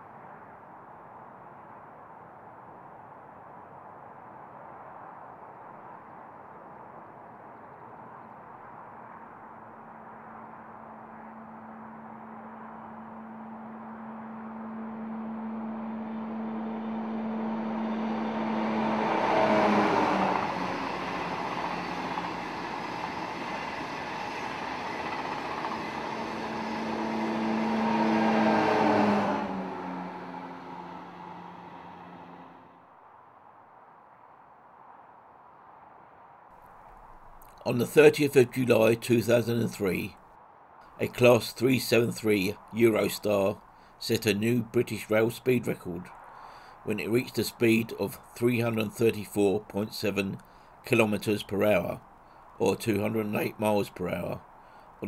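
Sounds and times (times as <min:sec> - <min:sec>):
train passing at speed: 0:10.0 - 0:32.8.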